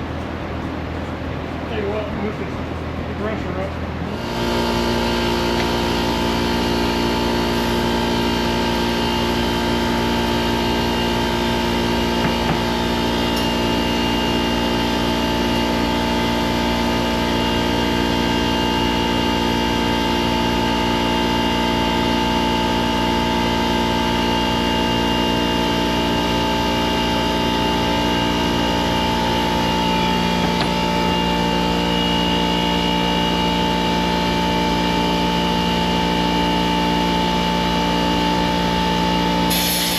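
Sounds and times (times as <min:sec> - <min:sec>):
small gasoline engine running: 0:04.1 - 0:39.9
water spraying from leak: 0:39.5 - 0:39.9.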